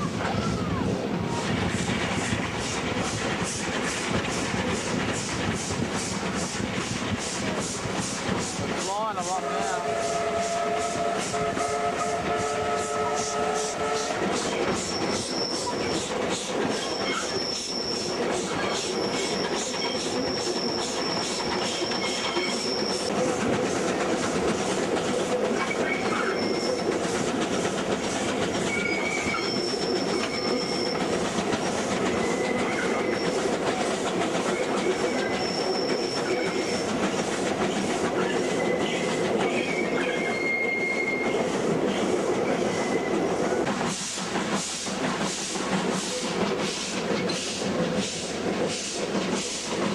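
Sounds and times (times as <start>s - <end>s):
train carriages rumbling on rails: 0.0s - 49.9s
wheel flanges squealing: 14.3s - 23.1s, 25.5s - 27.4s, 28.1s - 43.5s.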